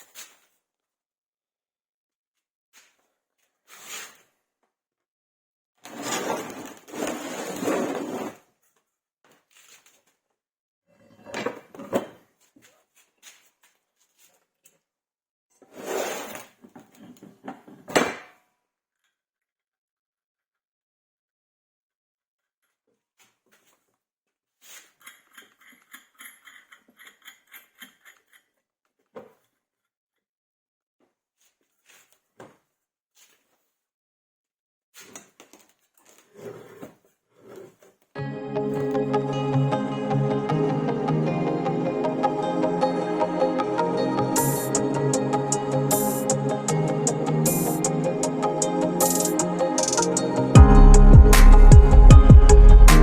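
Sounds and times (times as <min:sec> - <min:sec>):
objects rustling and clattering: 0:05.9 - 0:10.2, 0:15.6 - 0:18.0
small scraping clicks: 0:24.7 - 0:28.6.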